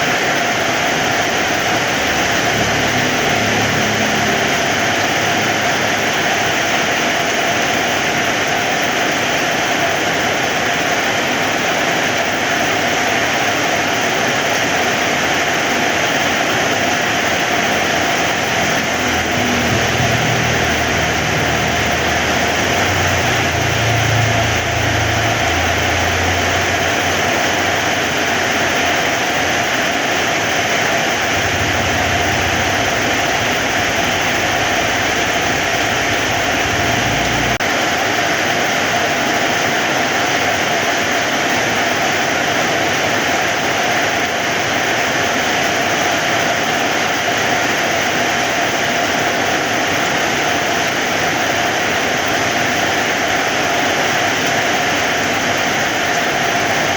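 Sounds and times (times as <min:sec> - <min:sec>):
heavy rain falling: 0:00.0 - 0:56.9
low rumble: 0:17.8 - 0:28.4, 0:31.0 - 0:37.7.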